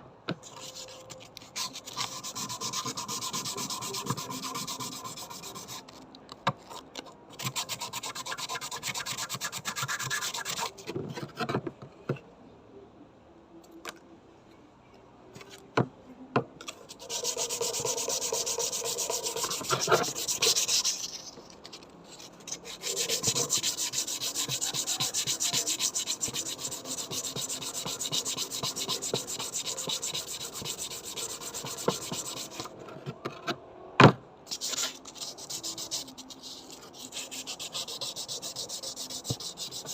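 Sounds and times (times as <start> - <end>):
abrasive rubbing on metal scabbard: 0.4 - 6.0, 16.7 - 32.7, 34.5 - 39.9.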